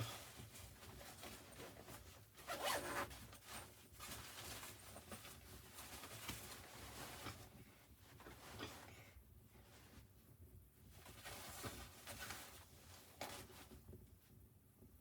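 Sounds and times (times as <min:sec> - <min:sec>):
zipper being pulled: 0:02.5 - 0:03.1.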